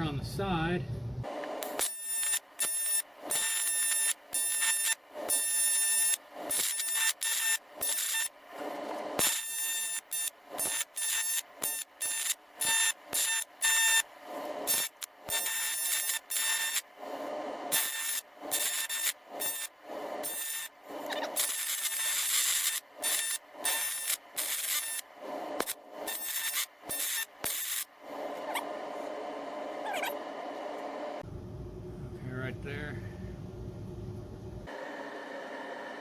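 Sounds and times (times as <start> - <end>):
welding arc buzzing and hissing: 1.3 - 28.6.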